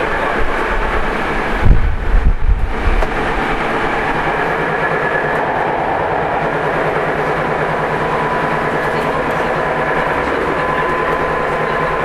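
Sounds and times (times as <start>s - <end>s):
electric train motor tones: 0.0s - 12.0s
wheels rumbling on rail: 0.0s - 12.0s.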